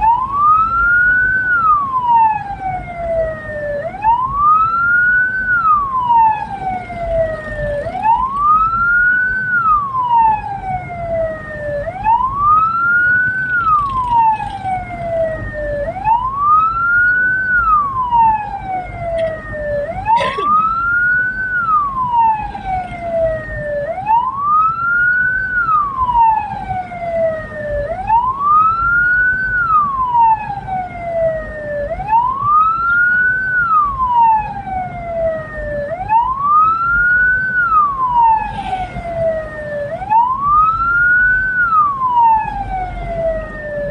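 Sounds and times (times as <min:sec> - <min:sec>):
siren wailing: 0:00.0 - 0:43.9
vehicle rumbling on road: 0:00.0 - 0:43.9.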